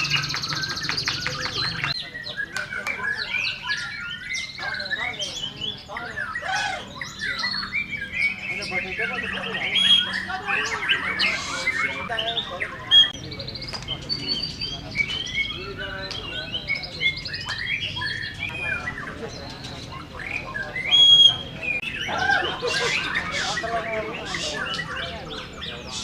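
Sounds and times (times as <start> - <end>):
songbirds chirping and whistling: 0.0 - 26.0
loud clear bird whistle: 20.2 - 23.6.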